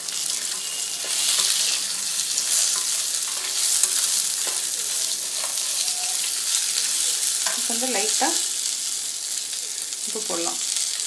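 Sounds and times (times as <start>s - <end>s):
food sizzling in hot oil: 0.0s - 11.0s
wooden spatula scraping: 0.2s - 7.2s.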